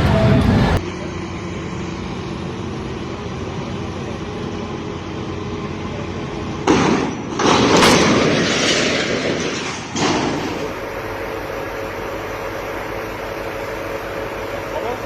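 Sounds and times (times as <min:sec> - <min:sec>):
heavy machinery engine hum: 0:00.0 - 0:15.0
loud crash: 0:06.6 - 0:10.8.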